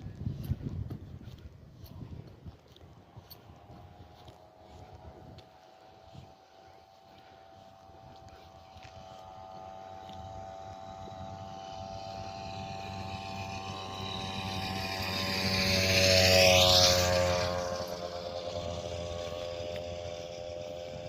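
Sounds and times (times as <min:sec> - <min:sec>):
vehicle engine passing by: 0:03.2 - 0:21.0.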